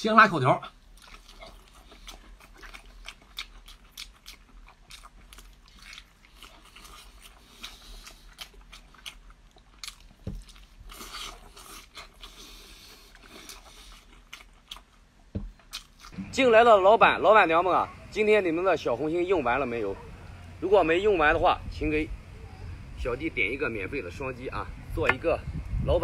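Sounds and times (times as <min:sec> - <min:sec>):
wet chewing and smacking: 0:00.7 - 0:16.2
soft thump: 0:15.3 - 0:15.6.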